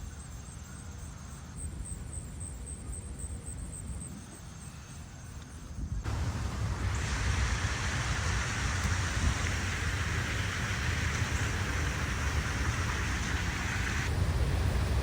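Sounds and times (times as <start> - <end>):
continuous low rumble: 0.0 - 15.0
heavy rain hissing: 6.1 - 15.0.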